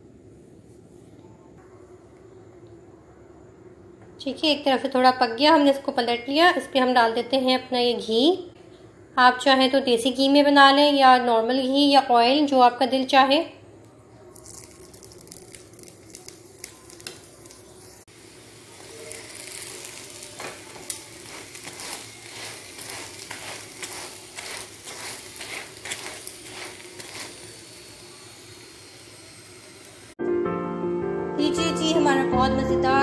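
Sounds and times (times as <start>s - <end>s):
flatbread sizzling in ghee: 14.3s - 30.2s
metal turner scraping griddle: 18.4s - 29.1s.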